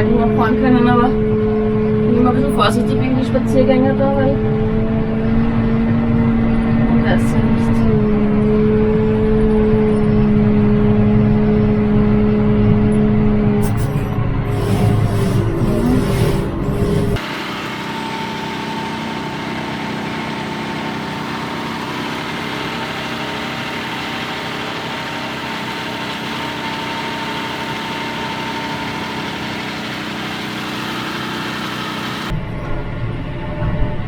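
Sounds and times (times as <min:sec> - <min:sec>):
tractor engine running: 0:00.0 - 0:33.2
thin steady whine: 0:13.6 - 0:34.0.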